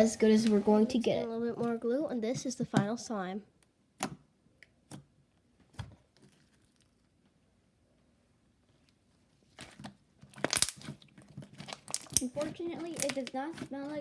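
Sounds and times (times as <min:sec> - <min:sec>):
slime squished crackling and popping: 0:09.6 - 0:14.0.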